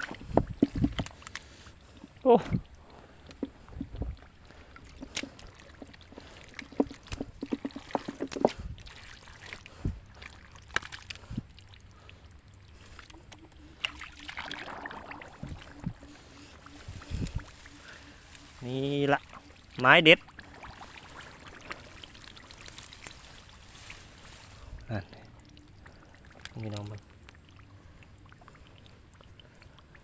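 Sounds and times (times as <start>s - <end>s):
faint steady hum: 0.0s - 30.0s
water splashing and sloshing: 0.0s - 30.0s.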